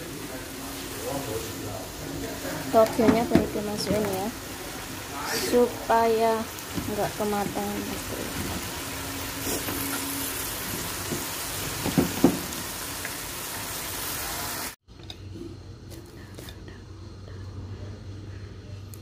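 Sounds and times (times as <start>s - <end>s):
food sizzling in a wok: 0.0s - 14.8s
steady low hum: 15.0s - 19.0s.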